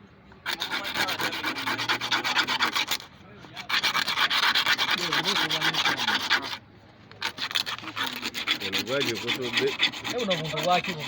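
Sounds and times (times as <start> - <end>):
rasping scrubbing strokes: 0.4 - 6.6, 7.2 - 11.0.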